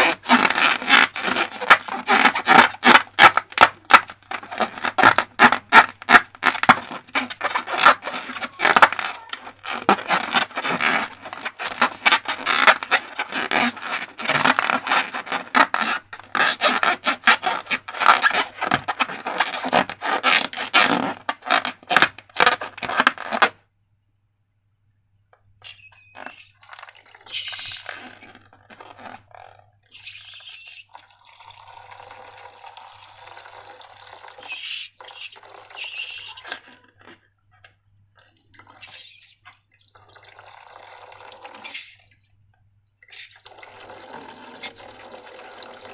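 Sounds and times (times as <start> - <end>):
slime crackling and scraping: 0.0 - 23.6, 25.6 - 30.9, 34.4 - 37.3
wet liquid slime sounds: 25.6 - 45.9.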